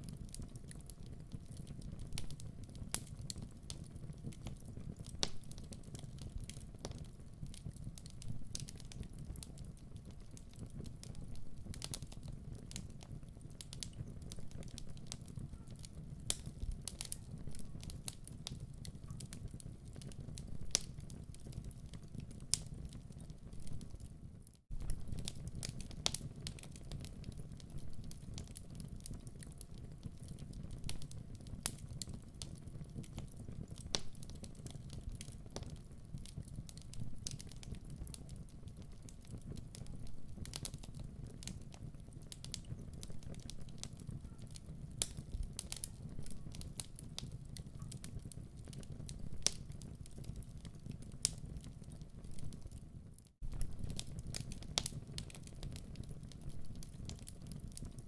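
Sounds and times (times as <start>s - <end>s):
wood fire burning: 0.0s - 58.0s.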